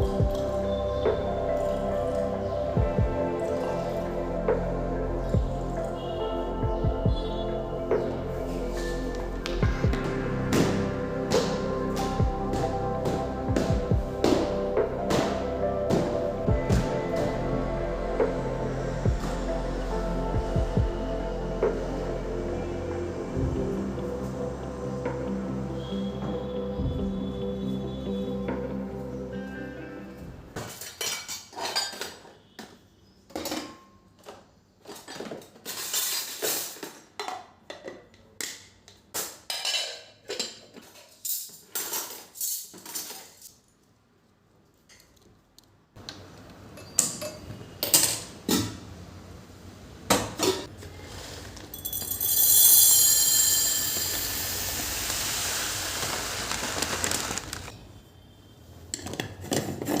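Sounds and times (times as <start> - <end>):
dishes and utensils clinking: 30.6 - 32.5, 33.3 - 43.6, 46.7 - 48.3.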